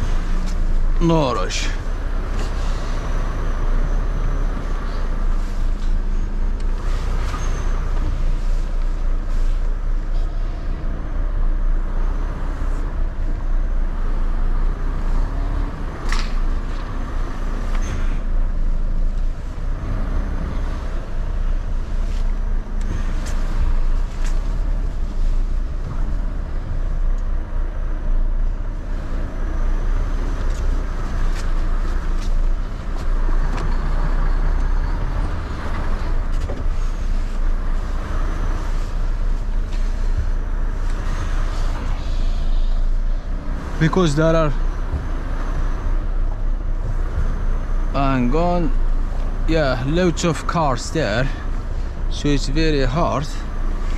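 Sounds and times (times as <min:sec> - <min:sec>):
lorry diesel engine running: 0:00.0 - 0:53.9.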